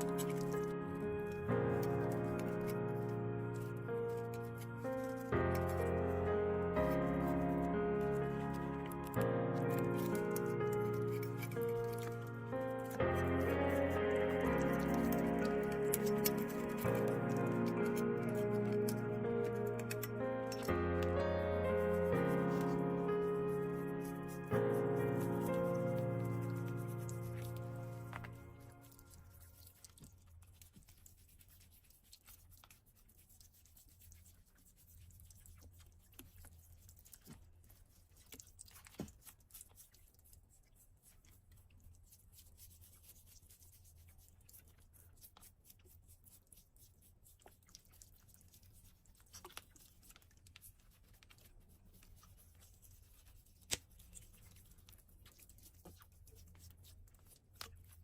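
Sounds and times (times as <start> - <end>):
hoof trimming scraping and snipping: 0.0 - 0.8, 8.4 - 21.1.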